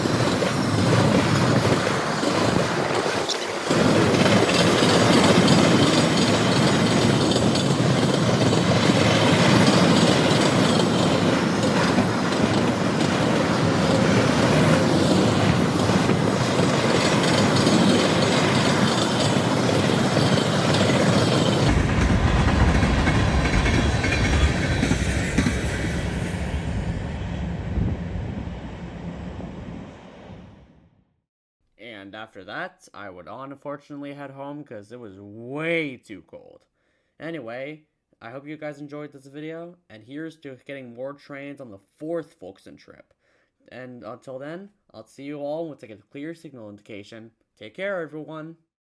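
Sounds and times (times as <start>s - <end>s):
train wheels clacking: 0.0s - 26.6s
train flange squeal: 0.0s - 30.6s.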